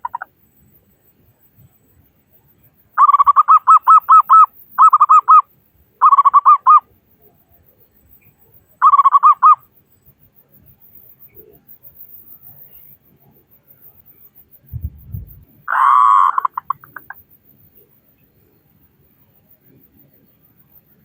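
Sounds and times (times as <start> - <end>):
dove cooing: 15.7 - 17.2.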